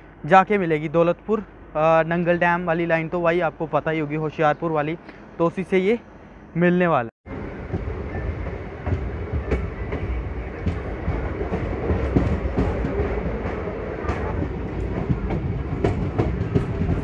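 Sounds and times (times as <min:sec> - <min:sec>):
train running gear rumble: 0:07.3 - 0:17.0
wheels clicking over rail joints: 0:07.6 - 0:17.0.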